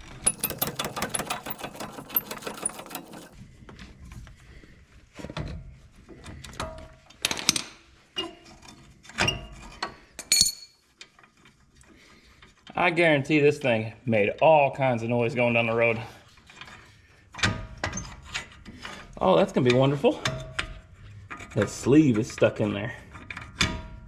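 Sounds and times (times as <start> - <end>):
metal clanks: 0.0 - 3.4
power tool rattling: 0.0 - 3.4.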